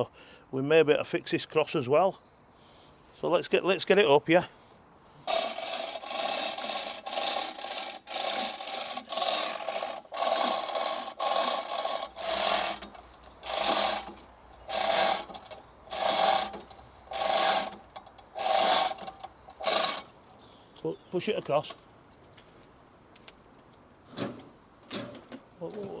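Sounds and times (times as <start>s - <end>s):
chain hoist rasping: 5.3s - 20.4s.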